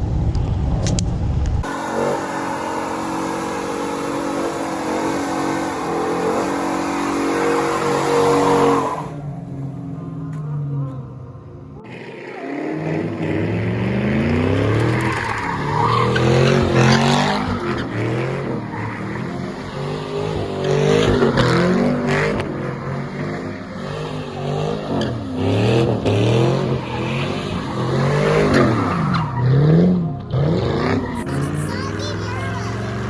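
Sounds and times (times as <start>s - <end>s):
car engine revving: 1.6s - 31.7s
tyres squealing on pavement: 1.7s - 9.4s, 14.5s - 22.2s, 26.2s - 29.8s.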